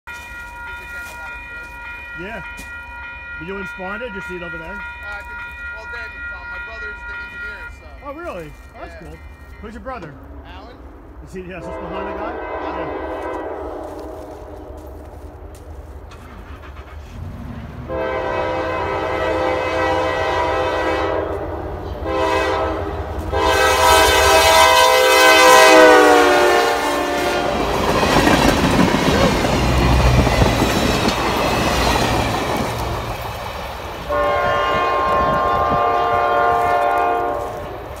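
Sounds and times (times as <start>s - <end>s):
locomotive horn blasts: 11.5s - 15.0s, 17.9s - 27.8s, 34.1s - 37.8s
freight cars clattering over rails: 27.6s - 33.8s.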